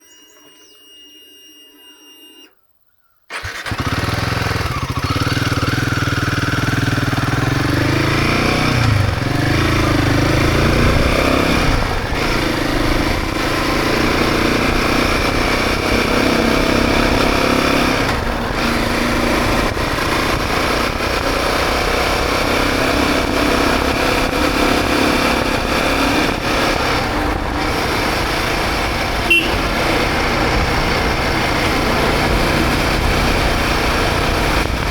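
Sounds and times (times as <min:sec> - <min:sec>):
motorcycle engine accelerating: 0:03.3 - 0:34.9
wind noise on microphone: 0:07.7 - 0:34.9.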